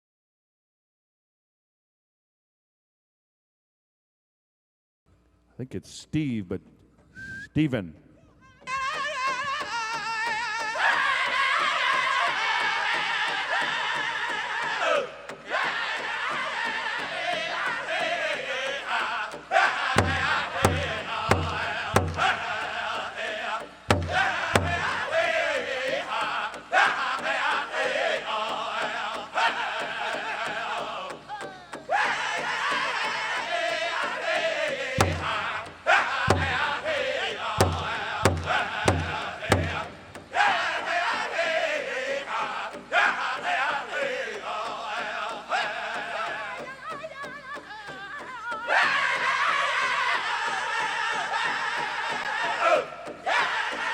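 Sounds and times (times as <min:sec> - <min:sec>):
big drum strokes: 0:08.7 - 0:53.9
group singing in high voices: 0:08.7 - 0:53.9.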